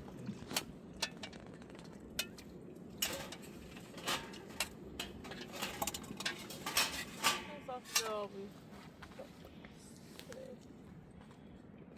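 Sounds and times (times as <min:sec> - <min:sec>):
dishes and utensils clinking: 0:03.0 - 0:08.2.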